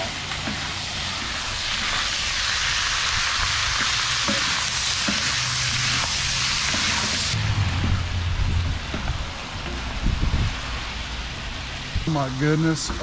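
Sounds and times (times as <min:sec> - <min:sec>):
sausage and onions sizzling: 0:00.0 - 0:13.0.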